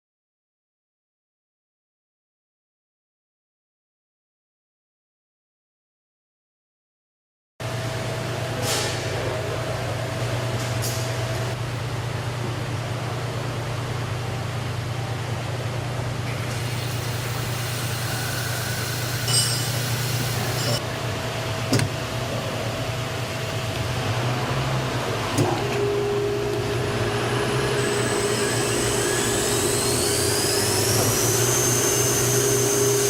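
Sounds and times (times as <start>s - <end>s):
key milling machine humming: 16.6s - 20.8s, 24.6s - 33.0s.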